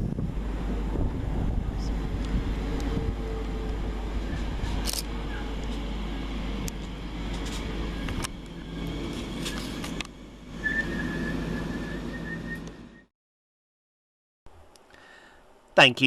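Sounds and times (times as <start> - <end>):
train rumbling: 0.0 - 13.1.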